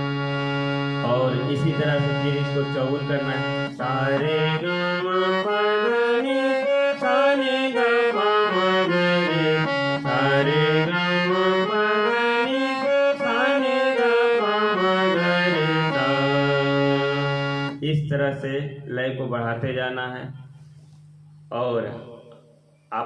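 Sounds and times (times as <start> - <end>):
harmonium quick runs of notes: 0.0 - 17.8.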